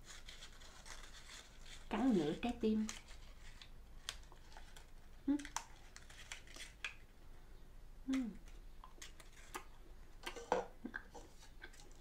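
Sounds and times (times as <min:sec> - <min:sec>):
person humming: 0:08.0 - 0:08.4.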